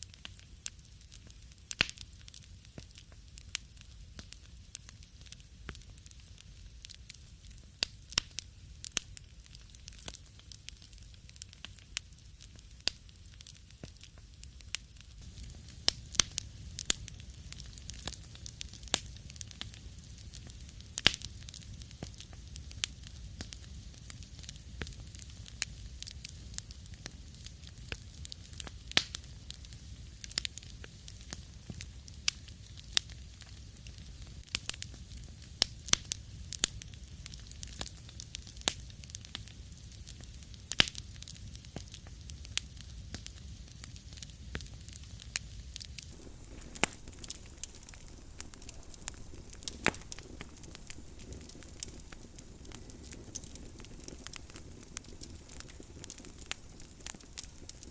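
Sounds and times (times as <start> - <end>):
wood fire crackling and popping: 0.0 - 57.9
faint hiss: 15.1 - 34.0, 45.8 - 57.9.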